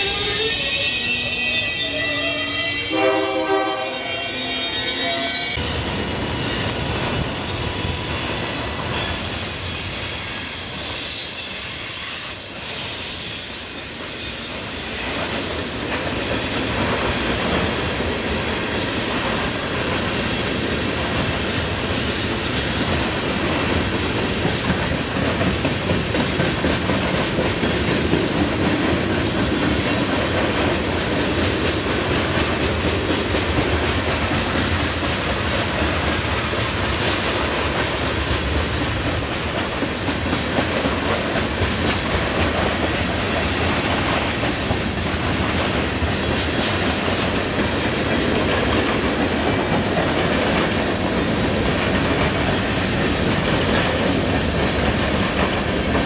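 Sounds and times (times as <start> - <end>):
freight train running noise: 0.0 - 56.0
high train squeal: 0.0 - 56.0
wheels clickety-clack over rail joints: 14.0 - 56.0.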